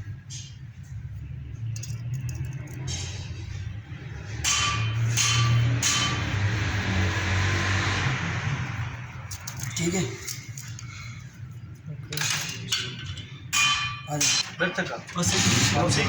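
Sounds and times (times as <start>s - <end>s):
cutting tool scraping steel: 4.4s - 8.1s.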